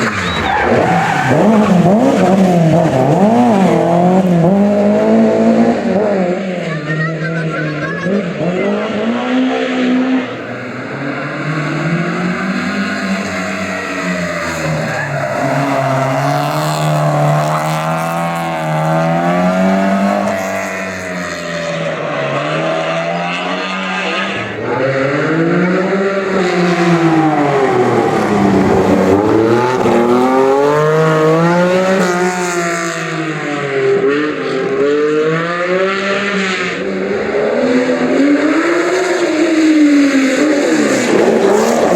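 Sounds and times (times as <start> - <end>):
tyre squeal: 0.0 - 2.3, 13.1 - 18.2
rally car engines revving: 0.0 - 41.9.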